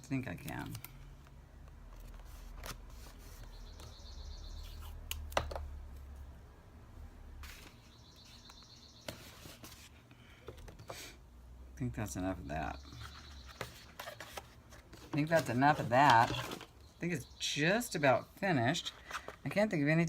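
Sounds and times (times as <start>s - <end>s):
paper rustling: 13.0s - 16.7s.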